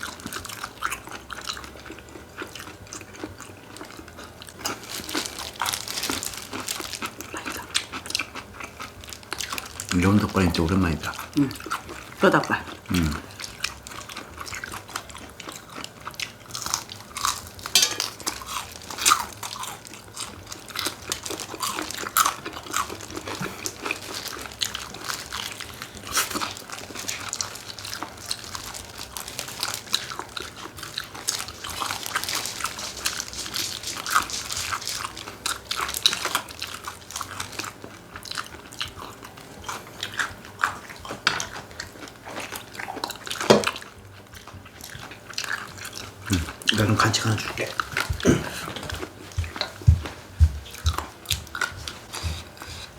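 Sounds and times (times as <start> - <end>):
chewing and crunching: 0.0 - 52.9.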